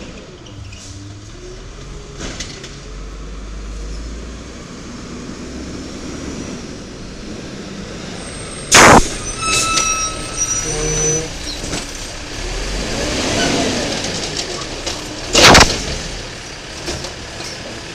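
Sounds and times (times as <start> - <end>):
diesel truck engine rumbling: 0.0 - 17.9
thin high squeal: 8.7 - 11.8.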